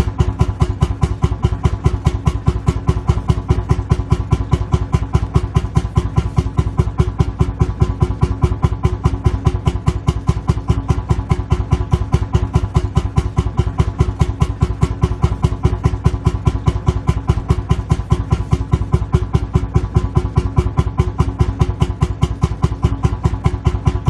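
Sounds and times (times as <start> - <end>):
engine idling with chuffing beat: 0.0 - 24.0.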